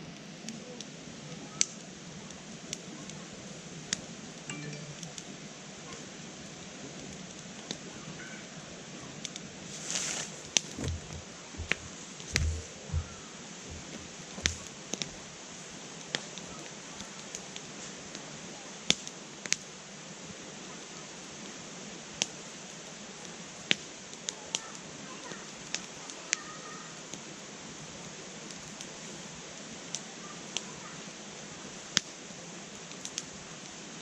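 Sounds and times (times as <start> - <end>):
campfire crackling and popping: 0.1 - 5.3, 6.5 - 8.1, 9.1 - 19.8, 21.4 - 27.4, 28.0 - 33.9
low thumps: 10.8 - 14.6.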